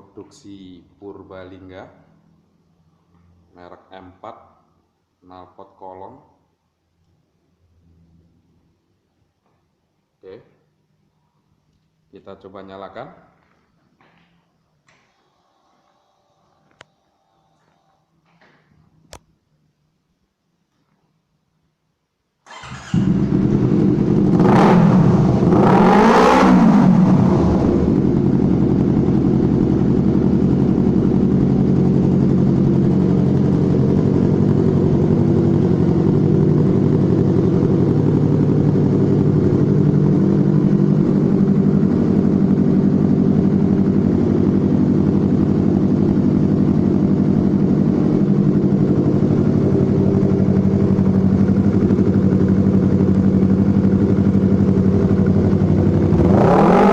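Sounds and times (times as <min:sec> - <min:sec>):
motorcycle engine revving and idling: 0:22.5 - 0:56.9.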